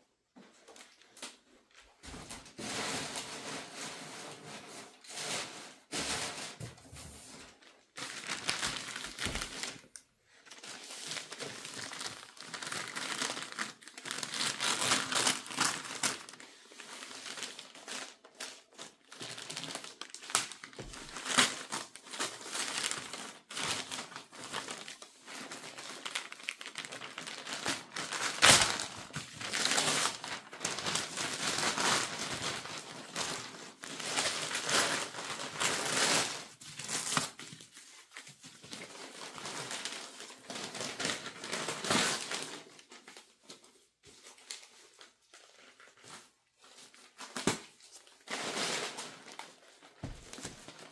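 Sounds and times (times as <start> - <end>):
packaging crinkling and rustling: 6.5 - 50.9.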